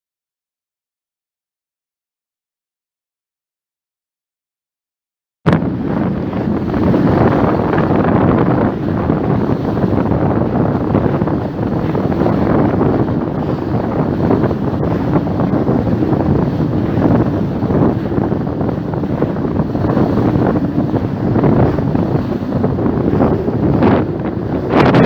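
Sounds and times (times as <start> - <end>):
wind blowing across microphone: 5.5 - 25.0.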